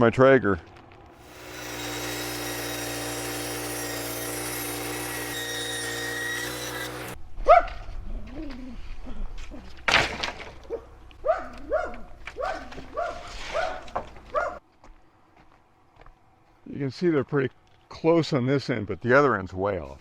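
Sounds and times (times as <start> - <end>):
motor hum: 1.2 - 7.2.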